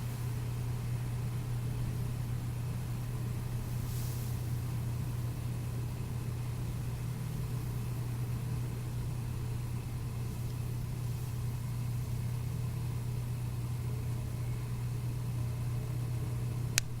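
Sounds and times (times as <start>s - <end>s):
sharp click: 16.8s - 17.0s.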